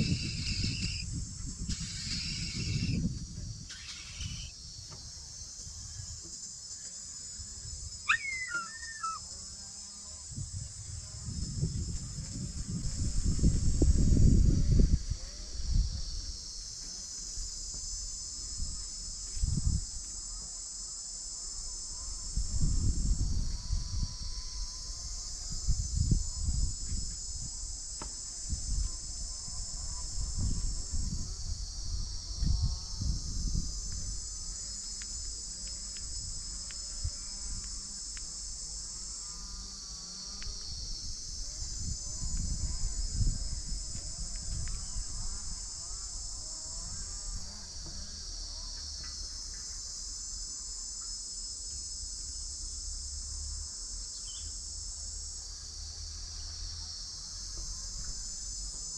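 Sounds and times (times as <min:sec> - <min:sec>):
insects buzzing: 0:00.0 - 0:58.9.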